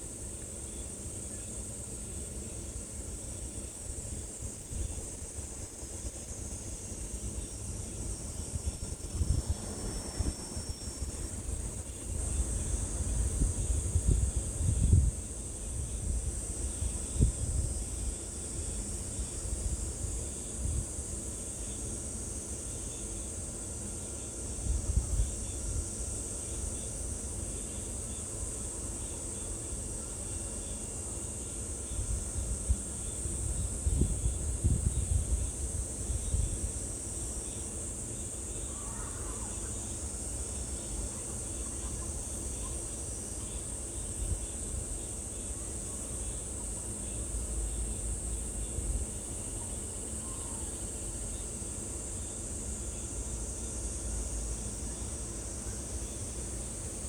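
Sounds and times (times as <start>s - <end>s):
insects droning: 0.0s - 57.0s
faint short bird calls: 38.6s - 40.2s.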